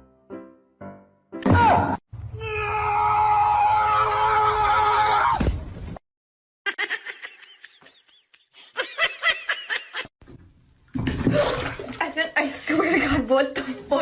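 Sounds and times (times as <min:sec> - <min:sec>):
background music: 0:00.0 - 0:02.0
laughter in bursts: 0:06.7 - 0:10.1.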